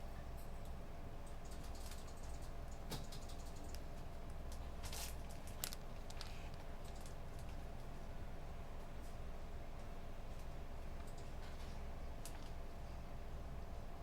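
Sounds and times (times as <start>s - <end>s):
low room hum: 0.0s - 14.0s
keyboard typing: 1.3s - 3.9s.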